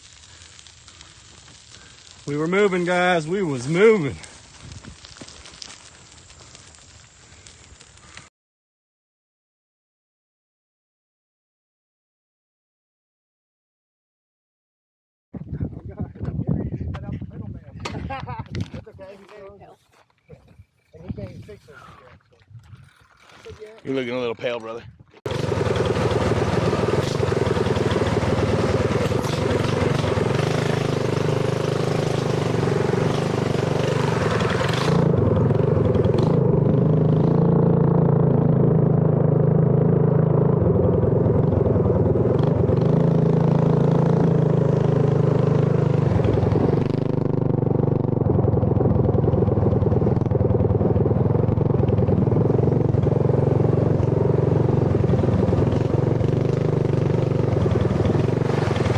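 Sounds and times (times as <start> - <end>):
mini bike engine running: 25.3 - 58.9.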